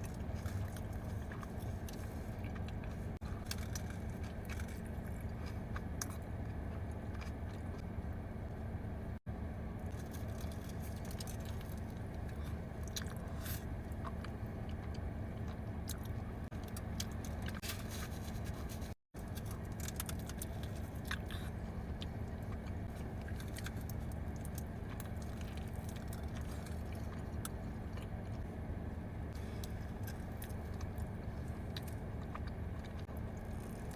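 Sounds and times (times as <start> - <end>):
chewing with wet mouth clicks: 0.0 - 7.8, 9.9 - 17.6, 19.2 - 28.4, 29.4 - 33.9
steady low hum: 0.0 - 33.9.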